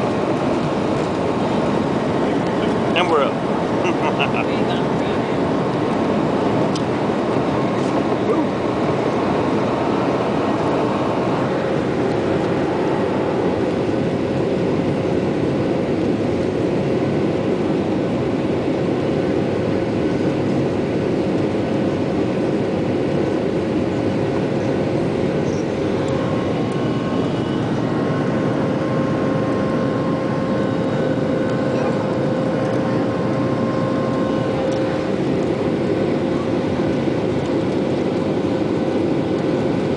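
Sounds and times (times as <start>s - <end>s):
jet engine rumble in cabin: 0.0s - 39.9s
faint steady whine: 22.0s - 39.9s.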